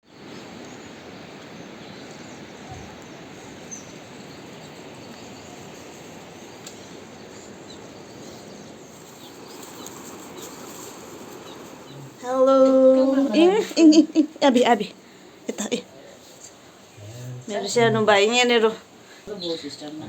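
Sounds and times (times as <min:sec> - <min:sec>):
outdoor background noise: 0:00.0 - 0:20.0
faint bird chirps: 0:00.1 - 0:13.5.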